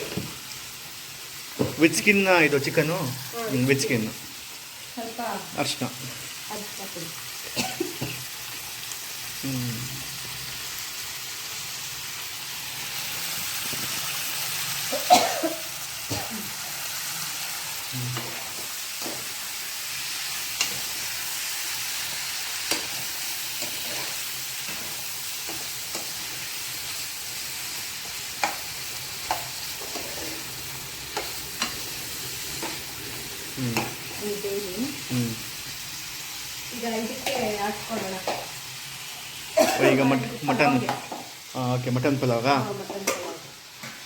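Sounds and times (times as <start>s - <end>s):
chicken sizzling in oil: 0.0s - 44.0s
spatula scraping a pan: 22.6s - 26.5s, 27.7s - 32.9s.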